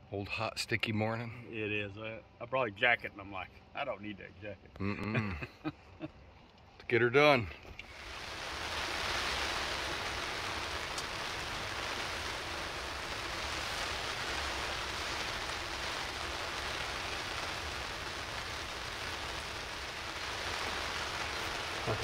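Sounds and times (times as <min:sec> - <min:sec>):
rain on hunting blind: 0:07.6 - 0:22.0.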